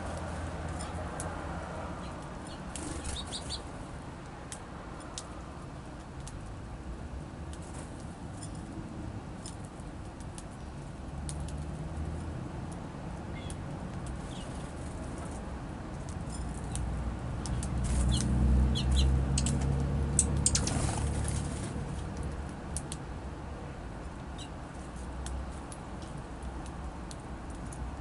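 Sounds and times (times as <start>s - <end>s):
songbirds chirping: 1.9s - 3.8s, 17.4s - 21.0s
wings fluttering: 2.5s - 3.7s, 17.5s - 22.0s.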